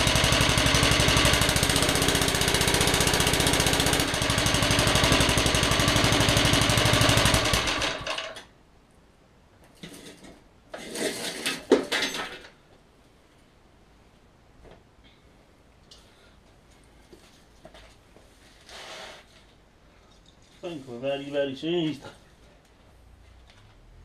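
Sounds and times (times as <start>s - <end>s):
lawn mower petrol engine running: 0.0s - 8.4s.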